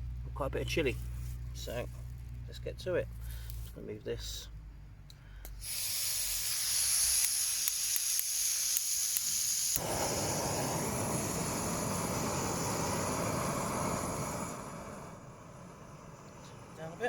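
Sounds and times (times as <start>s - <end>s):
piezo igniter clicks: 5.0s - 13.0s
gas burner roaring: 5.4s - 17.0s
gas hissing from burner: 5.5s - 17.0s.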